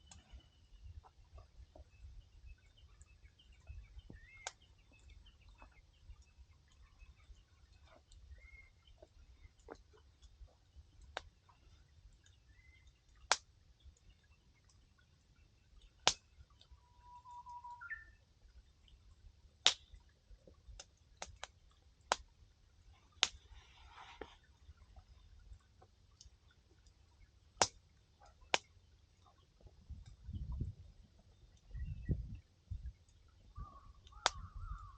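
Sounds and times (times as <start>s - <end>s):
campfire wood popping and crackling: 6.8s - 11.5s, 12.2s - 13.9s, 15.8s - 16.6s, 19.5s - 22.4s, 23.0s - 31.8s, 33.0s - 34.9s.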